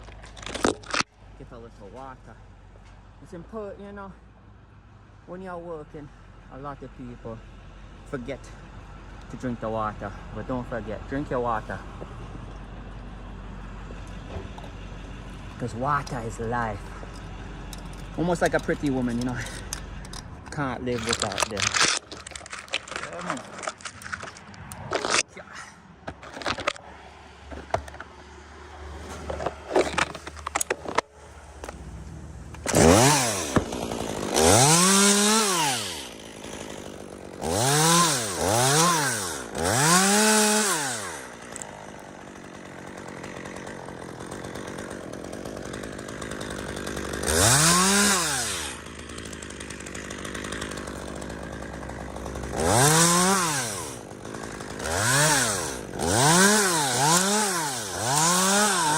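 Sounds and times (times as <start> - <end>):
chainsaw revving: 13.9 - 25.2, 29.2 - 31.0, 32.6 - 58.9.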